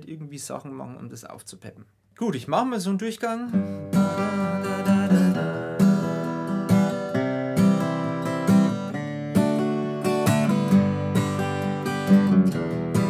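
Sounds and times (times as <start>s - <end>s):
acoustic guitar strumming: 3.5s - 13.0s.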